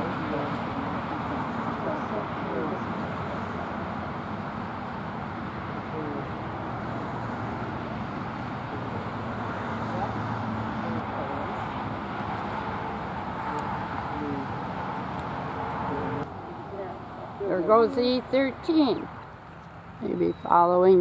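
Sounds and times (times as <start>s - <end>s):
road traffic noise: 0.0s - 21.0s
bird chirping: 4.0s - 10.8s.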